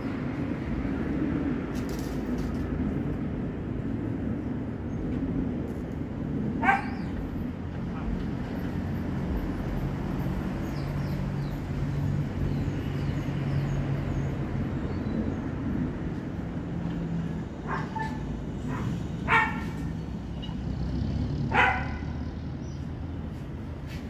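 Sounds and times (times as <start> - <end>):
dog barking: 6.6 - 7.1, 17.6 - 19.9, 21.5 - 22.2.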